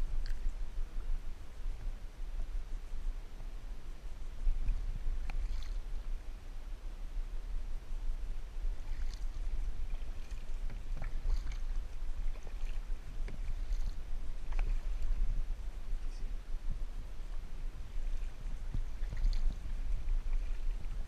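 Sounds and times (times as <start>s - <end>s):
wind rumble on microphone: 0.0s - 21.0s
paddle splashes and drips: 0.1s - 0.6s, 4.5s - 6.2s, 8.6s - 21.0s.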